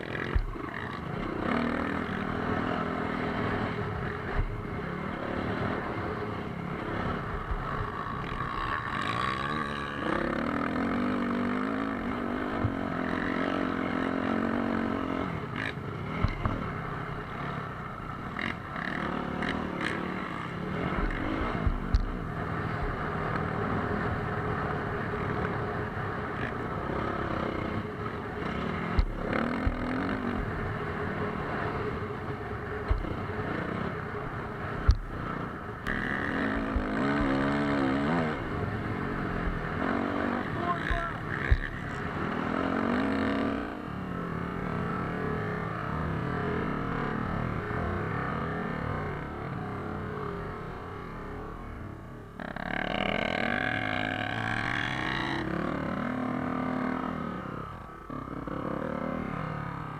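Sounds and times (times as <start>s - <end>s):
dirt bike engine revving: 0.0s - 49.6s, 52.4s - 59.9s
sharp knocks and low thumps: 20.9s - 22.2s, 28.9s - 30.6s, 41.5s - 41.8s.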